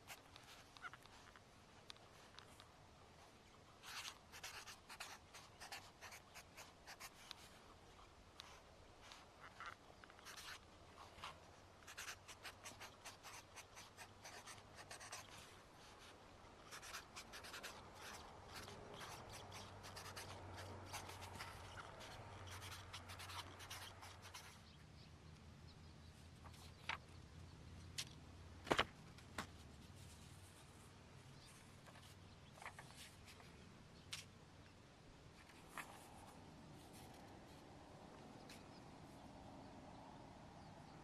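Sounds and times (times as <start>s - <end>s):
pen scratching on paper: 3.8s - 7.5s, 11.2s - 16.0s, 16.6s - 24.6s.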